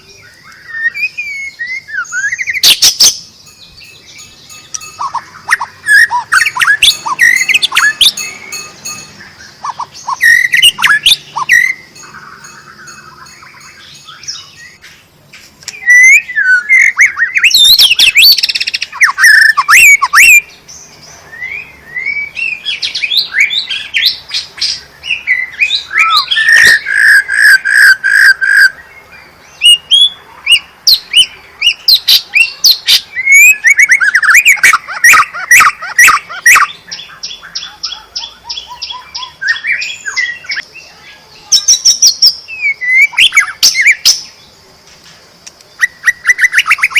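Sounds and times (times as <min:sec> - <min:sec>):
bird singing whistles and chatter: 0:00.0 - 0:14.9, 0:45.8 - 0:46.9.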